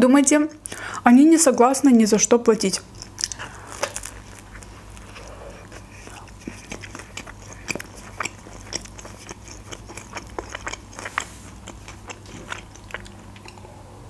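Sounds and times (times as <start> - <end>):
chewing food: 2.6 - 13.7
wet mouth clicks: 3.0 - 13.6.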